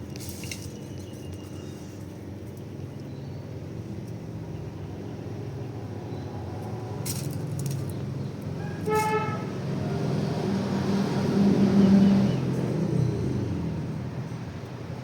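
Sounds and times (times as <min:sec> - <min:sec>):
horn-like toot: 0:08.6 - 0:09.5.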